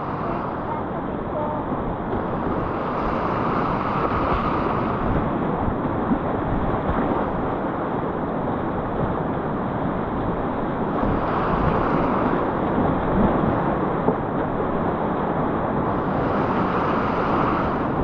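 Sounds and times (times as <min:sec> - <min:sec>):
river rushing through rapids: 0:00.0 - 0:05.4, 0:09.4 - 0:18.0.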